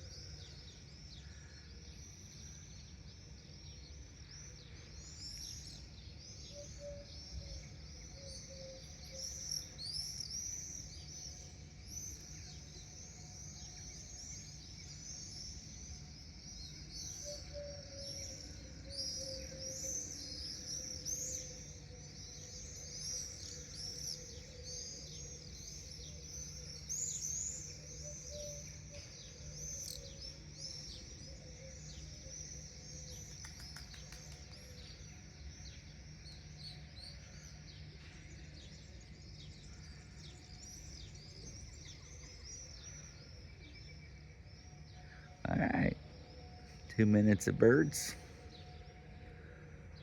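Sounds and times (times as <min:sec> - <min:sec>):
birds chirping in flight: 0:14.0 - 0:37.7.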